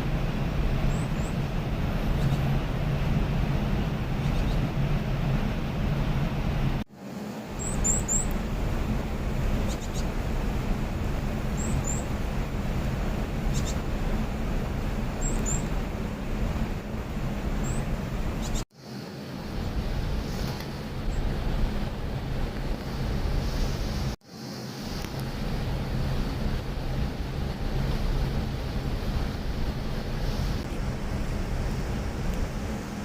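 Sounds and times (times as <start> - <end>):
low background rumble: 0.0 - 18.7, 19.3 - 24.2, 24.9 - 33.0.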